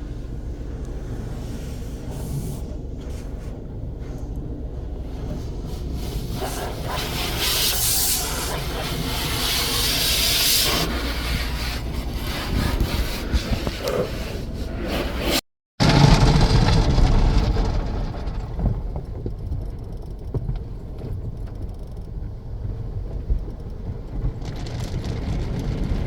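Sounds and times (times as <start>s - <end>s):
car wash machinery rumble: 0.0s - 26.0s
brushes rubbing over car: 5.3s - 15.4s
water spray: 5.9s - 14.2s.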